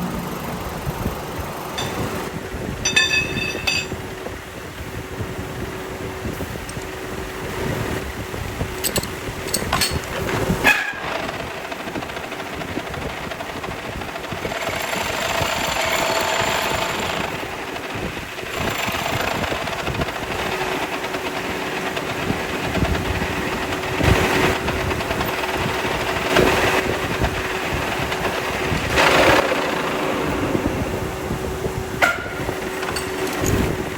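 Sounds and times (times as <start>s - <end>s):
workshop machinery humming: 0.0s - 33.9s
sharp metal knocks and clanks: 1.7s - 4.0s, 8.8s - 11.0s.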